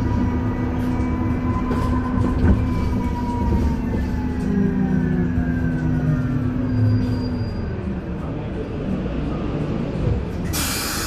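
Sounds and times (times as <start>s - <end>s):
road noise: 0.0s - 11.0s
loud air hiss: 10.5s - 11.0s.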